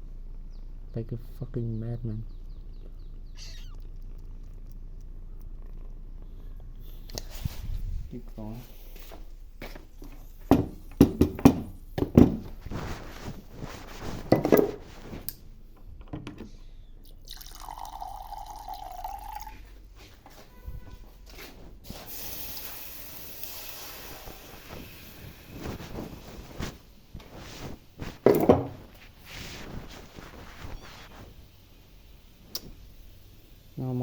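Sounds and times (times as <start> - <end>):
kitchen knocks and clatters: 10.1 - 12.6, 14.2 - 15.0, 15.8 - 16.6, 28.2 - 28.9.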